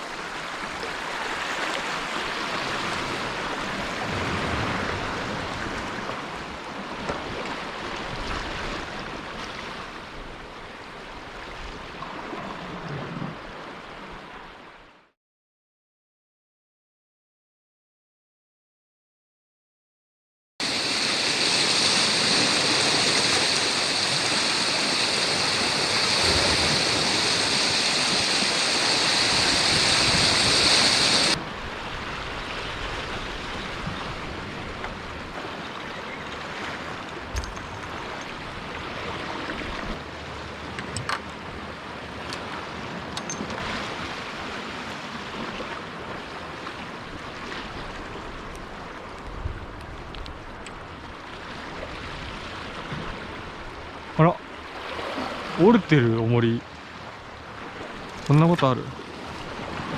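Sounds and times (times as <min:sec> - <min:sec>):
surf on rocky shore: 0:00.0 - 0:14.7, 0:20.6 - 0:59.9
wind: 0:00.0 - 0:15.2, 0:20.6 - 0:59.9
high-pitched hiss: 0:20.6 - 0:31.4.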